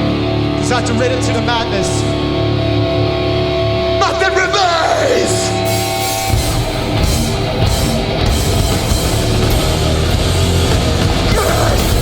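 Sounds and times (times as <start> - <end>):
bass guitar: 0.0 - 12.0
distorted electric guitars: 0.0 - 12.0
pounding drum kit: 5.2 - 12.0.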